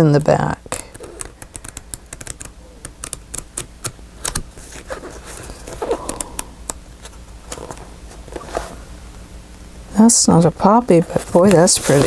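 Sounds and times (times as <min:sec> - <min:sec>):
paper rustling: 0:11.0 - 0:12.0.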